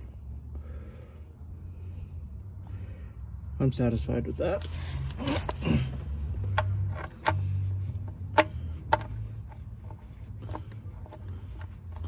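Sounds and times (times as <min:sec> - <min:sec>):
sharp clicks and knocks: 0:08.0 - 0:12.0.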